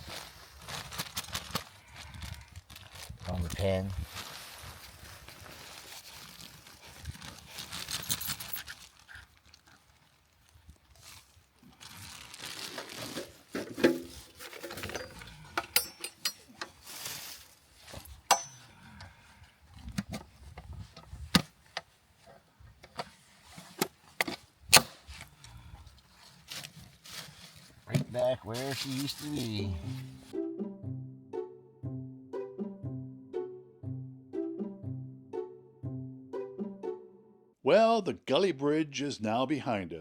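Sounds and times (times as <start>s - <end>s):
rustling: 0.0s - 30.3s.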